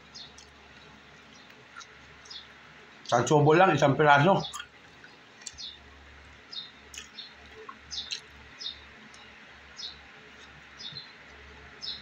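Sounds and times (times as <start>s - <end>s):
small bird chirping: 0.0s - 0.5s, 1.2s - 2.6s, 4.4s - 5.9s, 6.5s - 12.0s.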